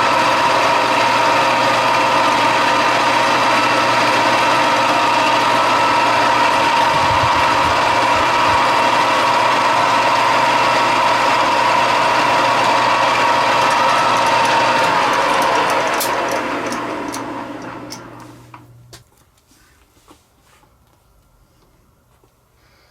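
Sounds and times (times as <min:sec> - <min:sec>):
machine tool whining: 0:00.0 - 0:18.9.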